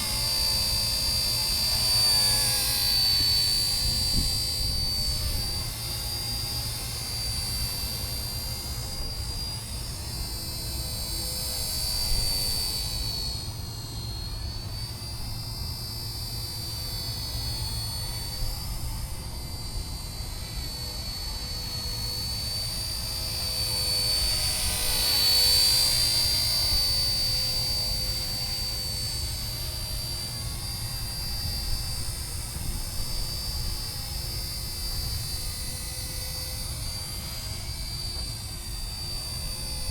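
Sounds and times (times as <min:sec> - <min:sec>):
model helicopter rotor whine: 0:00.0 - 0:39.9.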